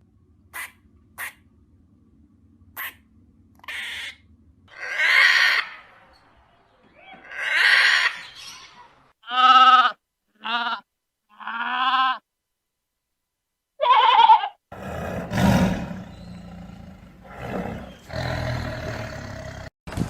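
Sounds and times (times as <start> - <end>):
rough noisy animal sound: 2.7 - 9.5, 14.7 - 19.7
animal cries: 3.6 - 6.0, 7.0 - 12.2, 13.8 - 14.6.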